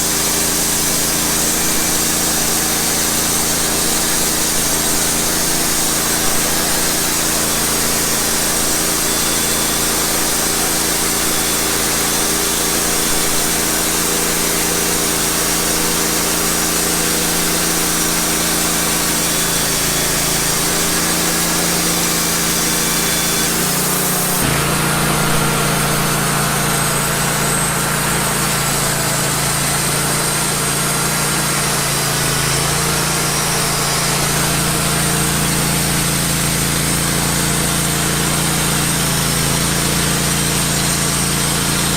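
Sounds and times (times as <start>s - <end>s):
band blade sawing log: 0.0s - 41.9s
sawmill engine running: 0.0s - 41.9s.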